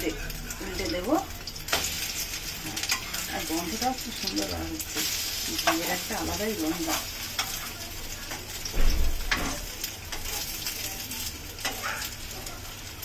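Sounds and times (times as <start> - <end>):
bread sizzling in a pan: 0.0 - 13.0.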